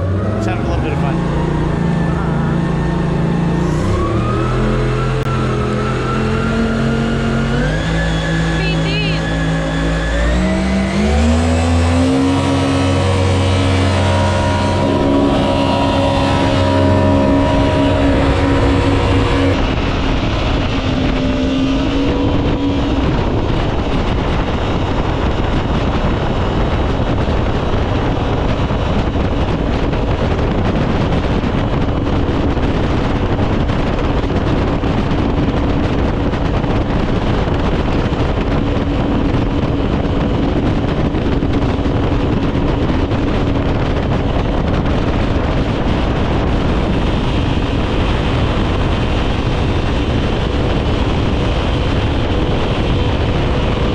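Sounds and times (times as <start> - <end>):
boat engine and jet pump running: 0.0 - 53.9.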